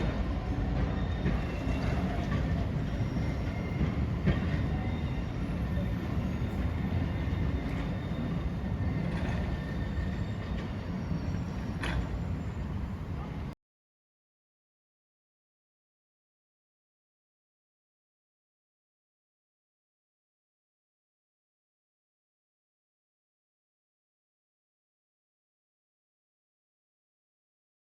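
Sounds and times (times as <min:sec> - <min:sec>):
train rumbling on rails: 0:00.0 - 0:13.6
faint wheel squeal: 0:00.5 - 0:13.6
wheel clicks over rail joints: 0:01.3 - 0:13.5.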